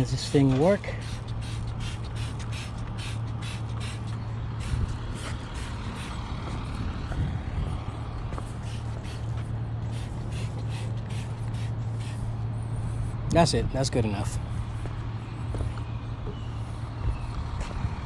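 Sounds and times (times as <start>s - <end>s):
water jet spraying hiss: 0.0s - 6.2s, 9.9s - 12.3s
pressure washer motor hum: 0.0s - 6.5s.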